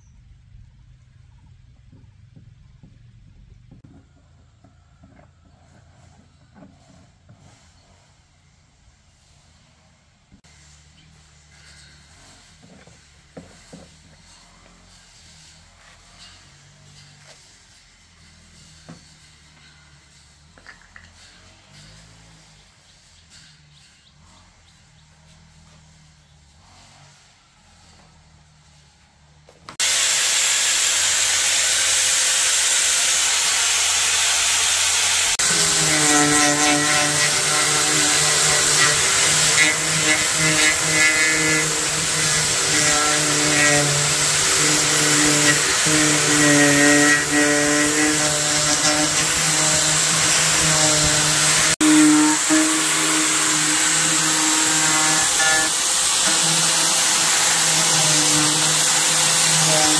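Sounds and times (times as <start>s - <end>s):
power tool hissing: 29.8s - 59.9s.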